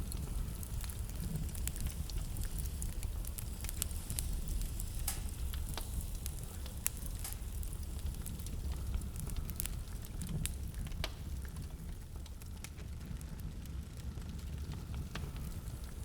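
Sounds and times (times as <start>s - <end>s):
fire hiss: 0.0s - 16.0s
fire rumble: 0.0s - 16.0s
wood fire crackling: 0.0s - 16.0s.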